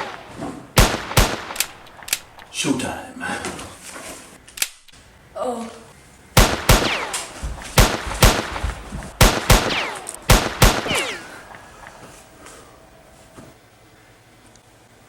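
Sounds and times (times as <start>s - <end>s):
gunshots with ringing tail: 0.0s - 2.8s, 6.4s - 12.2s.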